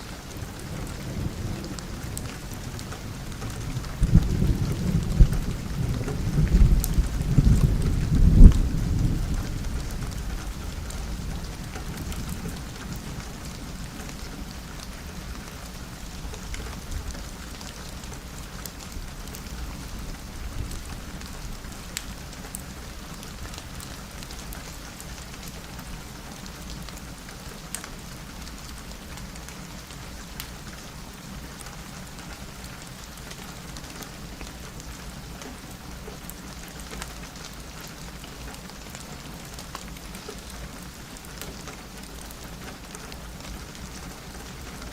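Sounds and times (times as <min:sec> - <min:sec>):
rain pattering on a window: 0:00.0 - 0:44.9
low thunder rumble: 0:00.4 - 0:15.3.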